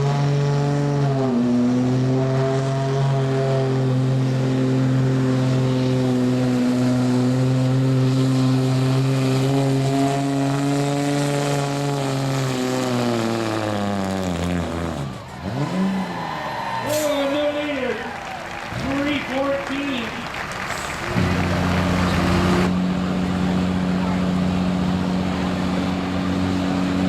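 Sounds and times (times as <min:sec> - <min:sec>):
diesel truck engine at high revs: 0:00.0 - 0:27.0.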